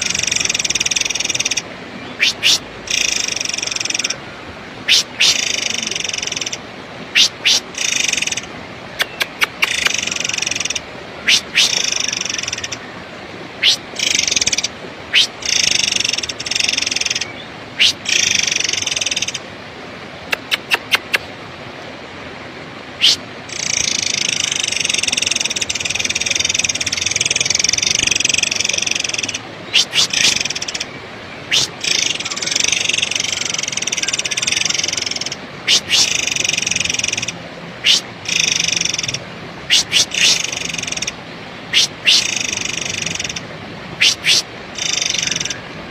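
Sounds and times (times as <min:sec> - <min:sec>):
bird harsh rasping calls: 0:00.0 - 0:04.2, 0:04.8 - 0:06.6, 0:07.2 - 0:12.8, 0:13.6 - 0:19.4, 0:23.0 - 0:45.6
sharp whistled bird notes: 0:02.1 - 0:02.6.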